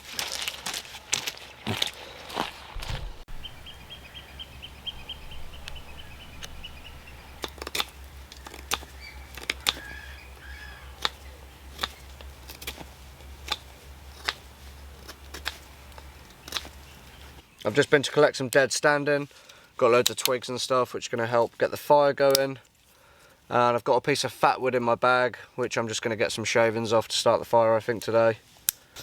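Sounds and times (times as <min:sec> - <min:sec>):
low hum: 0:02.6 - 0:17.4
small bird trilling: 0:03.3 - 0:12.2
sharp clicks: 0:03.3 - 0:14.4, 0:15.0 - 0:17.4.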